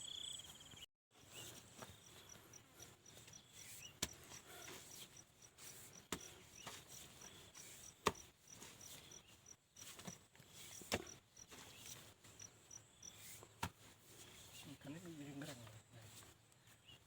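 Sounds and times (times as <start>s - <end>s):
insect chirping: 0.0s - 13.2s.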